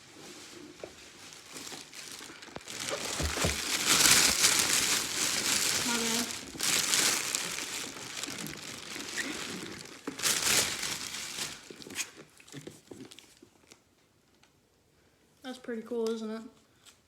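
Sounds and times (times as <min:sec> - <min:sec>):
packaging crinkling and rustling: 0:00.3 - 0:13.9.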